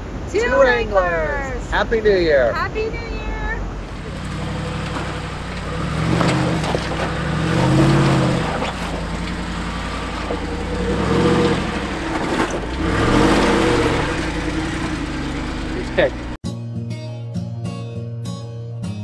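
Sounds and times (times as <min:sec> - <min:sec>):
car engine revving: 0:03.7 - 0:16.4.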